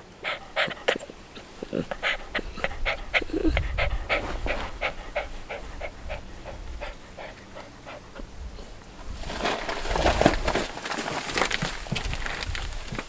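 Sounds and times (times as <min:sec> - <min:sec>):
dog panting rapidly: 0:00.0 - 0:08.9.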